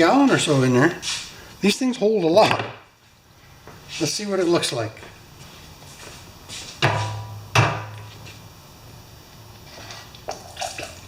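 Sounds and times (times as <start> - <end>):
hard knocks with low ring: 6.8 - 8.0.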